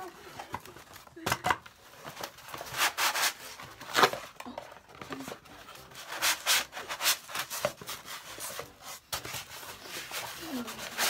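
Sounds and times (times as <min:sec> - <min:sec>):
cardboard scraping on cardboard: 0:01.9 - 0:04.4, 0:05.0 - 0:11.0.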